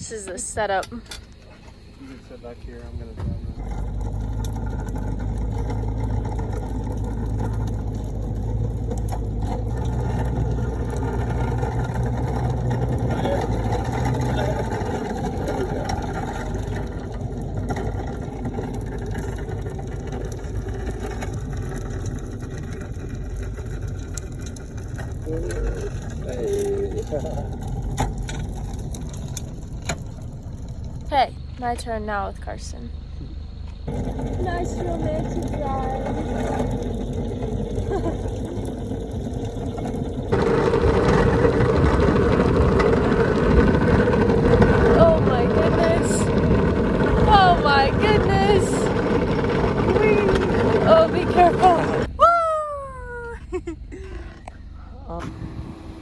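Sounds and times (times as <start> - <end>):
car engine and rolling noise: 0.0 - 56.0
sled rattling and scraping over ground: 0.0 - 56.0.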